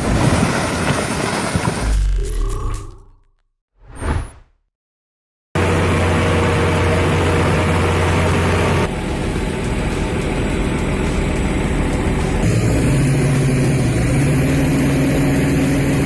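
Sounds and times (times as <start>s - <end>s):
heavy diesel engine running: 5.6s - 16.0s.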